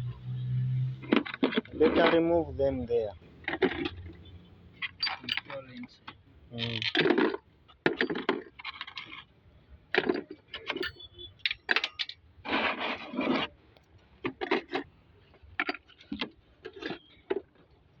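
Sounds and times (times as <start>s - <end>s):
metal tools clinking and scraping: 1.1s - 2.5s, 3.3s - 9.3s, 10.0s - 13.5s, 15.6s - 17.6s
metallic ring: 10.7s - 12.0s.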